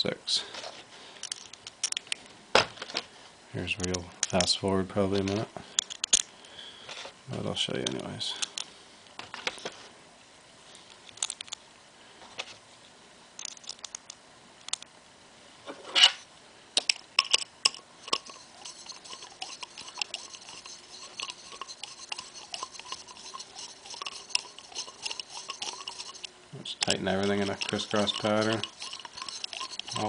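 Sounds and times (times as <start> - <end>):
small metal clicks and ticks: 1.2 - 2.2, 5.1 - 6.3, 11.0 - 11.6, 13.4 - 14.9, 16.8 - 30.0.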